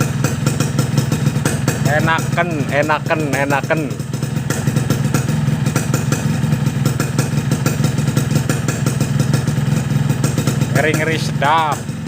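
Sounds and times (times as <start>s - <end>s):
two-stroke motorcycle engine running: 0.0s - 12.0s.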